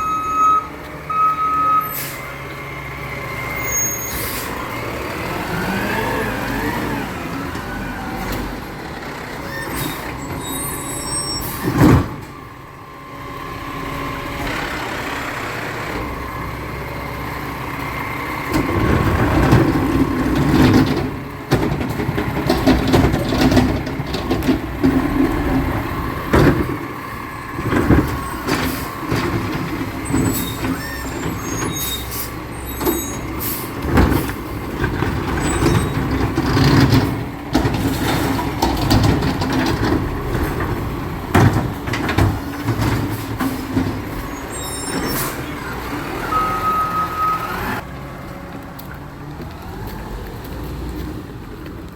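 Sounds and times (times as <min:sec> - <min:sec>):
recycling truck running: 0:00.0 - 0:51.9
metal clanks and knocks: 0:18.5 - 0:27.0, 0:32.8 - 0:44.3.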